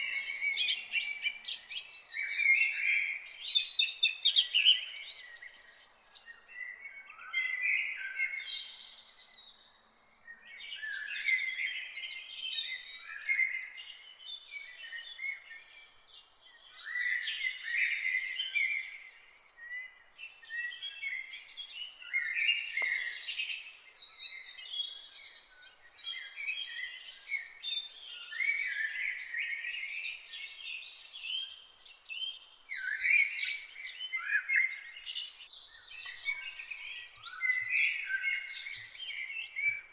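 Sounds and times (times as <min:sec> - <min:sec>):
songbirds singing: 0:00.0 - 0:39.9
faint click: 0:22.7 - 0:23.1.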